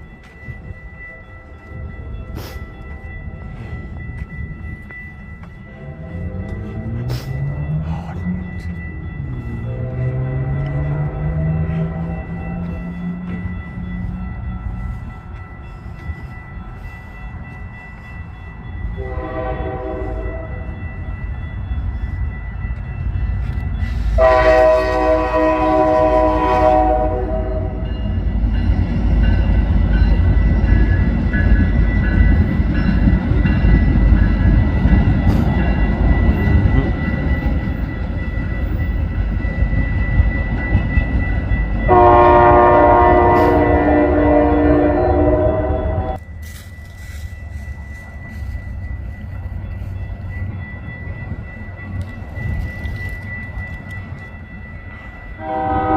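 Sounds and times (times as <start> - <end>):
low train rumble: 0.0 - 55.9
locomotive horn blasts: 19.0 - 20.7, 24.2 - 27.8, 41.9 - 46.2, 55.4 - 55.9.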